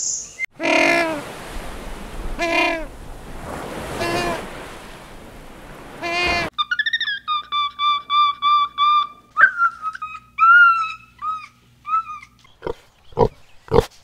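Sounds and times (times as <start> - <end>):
monkey whistle-like calls: 6.0 - 12.4.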